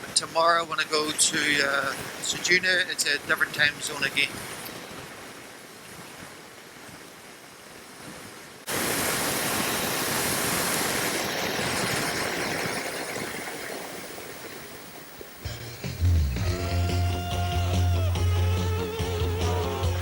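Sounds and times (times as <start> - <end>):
wind rush and road noise: 8.7 - 15.4.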